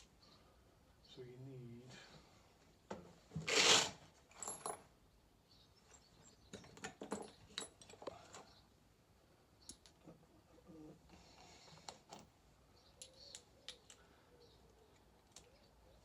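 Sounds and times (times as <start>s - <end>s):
loud scrape: 3.4s - 4.0s.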